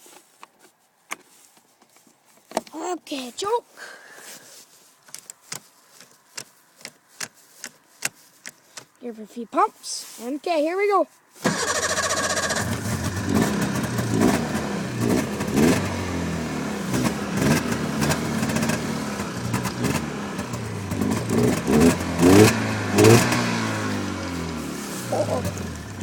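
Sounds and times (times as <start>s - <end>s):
snowmobile engine starting: 11.4s - 26.0s
snowmobile throttle blips: 11.5s - 26.0s.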